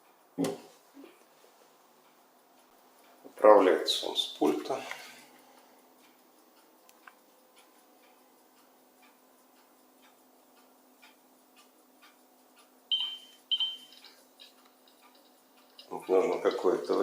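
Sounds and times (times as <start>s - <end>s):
faint steady ticking: 1.1s - 17.0s
short electronic beeps: 12.9s - 14.0s.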